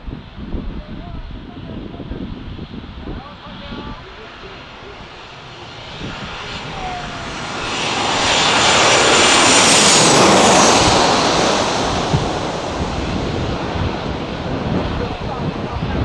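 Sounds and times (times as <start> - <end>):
aircraft passing low: 1.2 - 16.0
high engine whine: 3.4 - 16.0.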